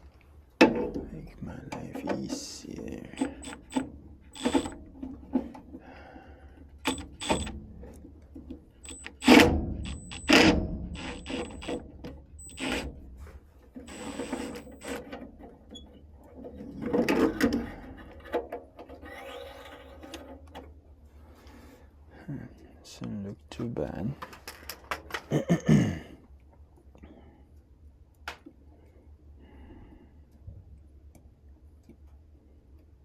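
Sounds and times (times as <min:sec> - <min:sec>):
tools clicking and clattering: 0:03.1 - 0:05.6, 0:06.8 - 0:12.8.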